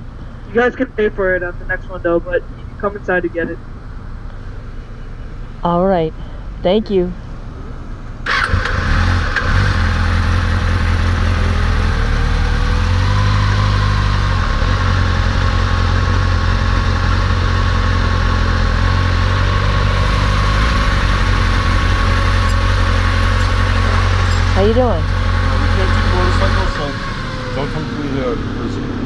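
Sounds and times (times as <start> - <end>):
motorcycle engine running: 8.8 - 29.0.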